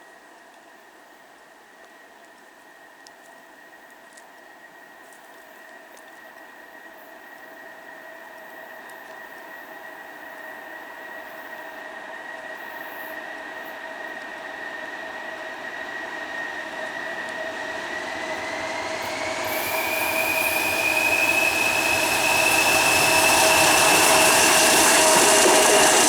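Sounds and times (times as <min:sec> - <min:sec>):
diesel locomotives rumbling: 0:13.6 - 0:26.0
high steady whine: 0:14.7 - 0:26.0.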